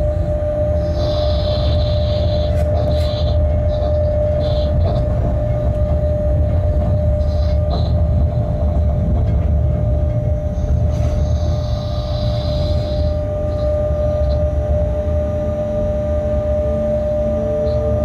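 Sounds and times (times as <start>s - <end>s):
locomotive rumble from cab: 0.0s - 18.0s.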